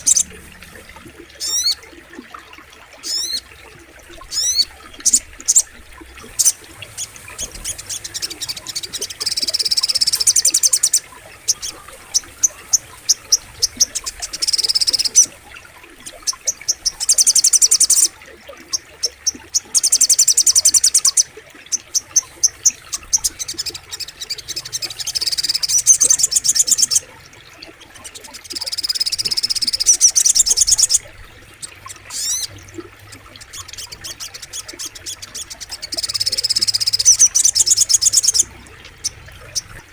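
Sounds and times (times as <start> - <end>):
songbird trilling and chirping: 0.0 - 0.3, 33.5 - 38.4
flowing water: 0.0 - 39.9.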